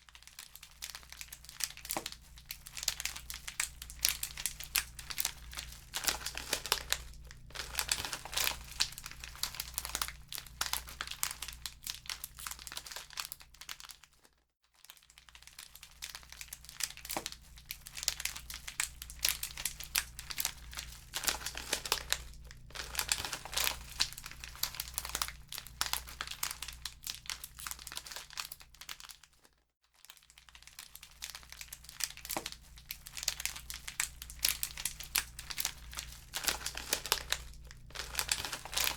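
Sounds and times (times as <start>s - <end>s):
low steady hum: 0.8s - 12.8s, 16.3s - 28.3s, 31.3s - 38.9s
wood fire crackling and popping: 2.8s - 11.2s, 18.8s - 26.4s, 32.0s - 38.9s.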